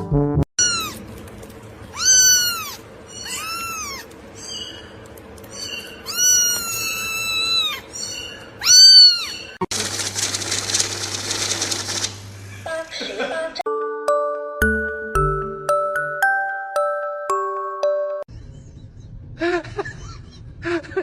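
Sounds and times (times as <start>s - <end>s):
cat meowing: 0.6s - 1.0s, 1.9s - 4.1s, 6.0s - 9.5s.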